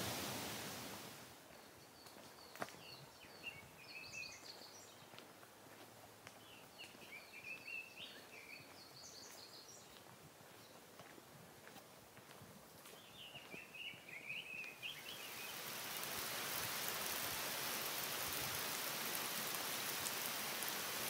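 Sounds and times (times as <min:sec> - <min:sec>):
hiss: 0:00.0 - 0:01.3, 0:14.9 - 0:21.0
faint birdsong chirping: 0:01.4 - 0:21.0.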